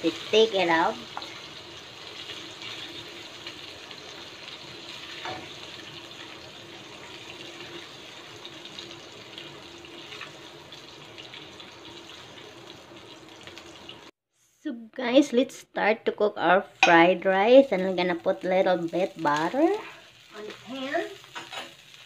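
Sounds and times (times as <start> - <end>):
shrimp sizzling in a wok: 0.0 - 14.2, 16.9 - 22.0.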